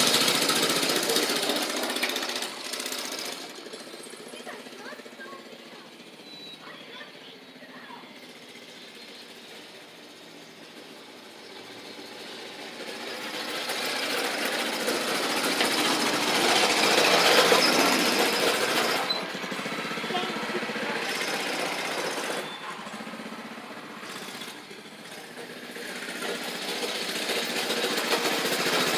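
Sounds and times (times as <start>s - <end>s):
mini bike engine rattling: 0.0s - 28.9s.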